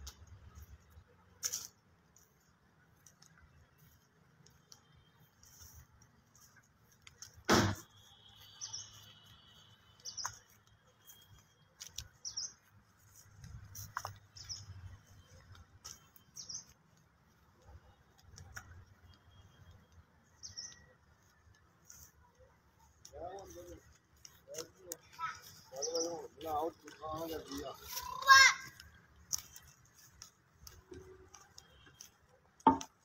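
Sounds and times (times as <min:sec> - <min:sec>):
sharp knock: 0:07.5 - 0:07.8
small bird chirping: 0:07.9 - 0:28.2.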